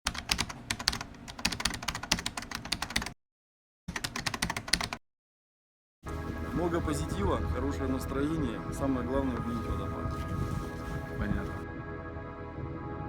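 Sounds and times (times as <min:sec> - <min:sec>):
rapid typing clicks: 0:00.1 - 0:03.2, 0:03.9 - 0:05.0.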